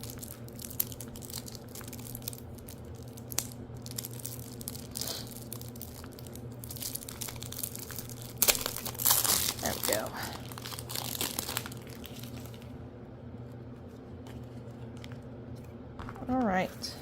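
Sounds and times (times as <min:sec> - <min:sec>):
plastic wrapping crinkling and tearing: 0:00.0 - 0:12.7
steady low hum: 0:00.0 - 0:17.0.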